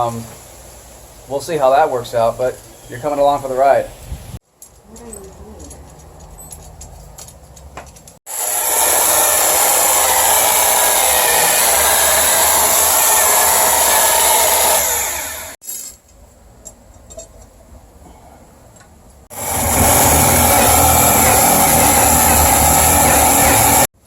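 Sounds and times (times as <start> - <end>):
electric power tool running: 8.3 - 15.6, 19.3 - 23.9.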